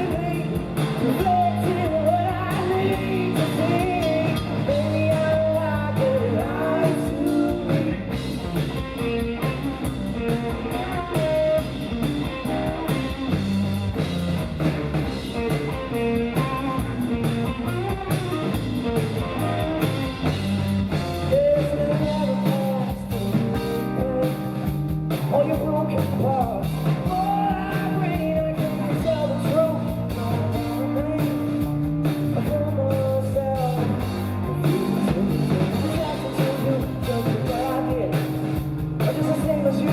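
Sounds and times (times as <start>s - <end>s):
person singing: 0.0s - 8.2s, 10.3s - 13.3s, 21.2s - 39.9s
drum kit: 0.0s - 39.9s
guitar: 0.0s - 39.9s.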